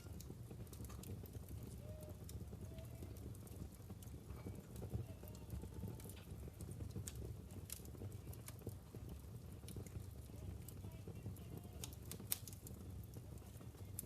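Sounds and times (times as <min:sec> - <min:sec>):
fire rumbling: 0:00.0 - 0:14.0
logs crackling and popping: 0:00.0 - 0:14.0
faint whistling tones: 0:01.6 - 0:03.1.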